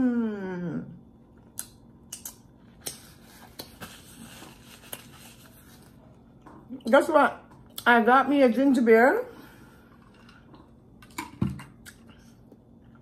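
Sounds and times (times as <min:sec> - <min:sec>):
sharp mouth clicks: 0:01.6 - 0:03.0.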